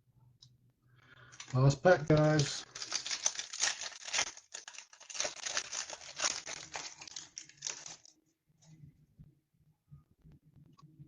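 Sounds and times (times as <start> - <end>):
foil wrapper crinkling and tearing: 1.3 - 8.1.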